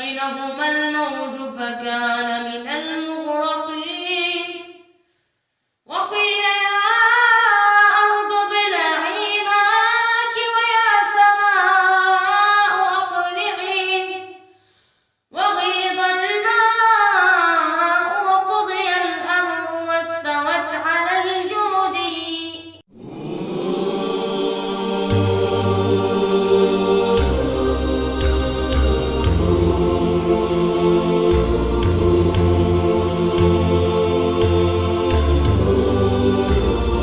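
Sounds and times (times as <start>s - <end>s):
person chanting recitation: 22.9s - 37.0s.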